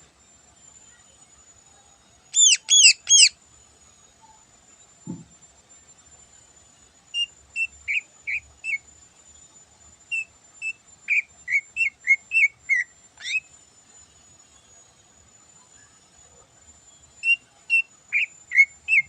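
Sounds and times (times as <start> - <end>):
bird singing whistled notes: 2.3 - 3.4, 7.2 - 8.9, 10.1 - 13.5, 17.2 - 19.0.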